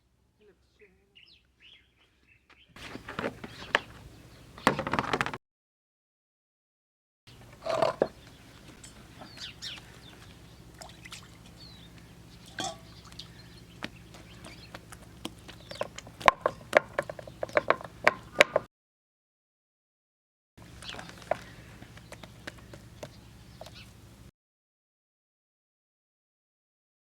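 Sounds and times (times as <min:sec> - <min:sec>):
chickens clucking: 0:07.4 - 0:18.6.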